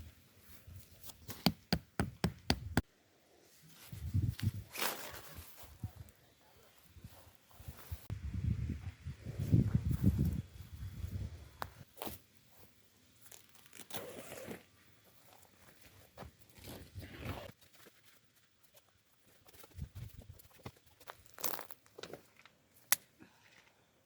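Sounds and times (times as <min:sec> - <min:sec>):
rustling and crinkling: 0:11.6 - 0:22.9.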